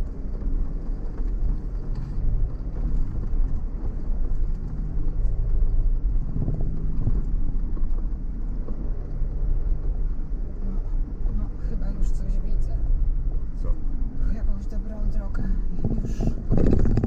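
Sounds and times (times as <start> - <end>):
vehicle engine and tyres rumbling: 0.0 - 17.0
knocks: 15.8 - 17.0.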